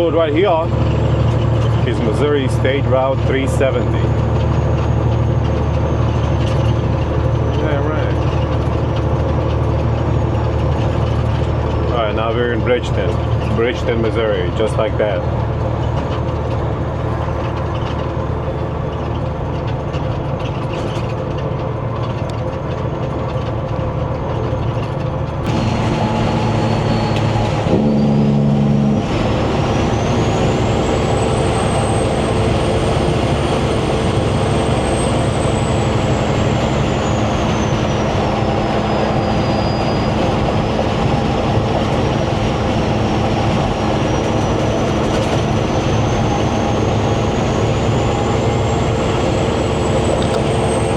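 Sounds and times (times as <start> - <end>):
diesel truck engine running: 0.0 - 50.9
high whine: 24.0 - 50.9.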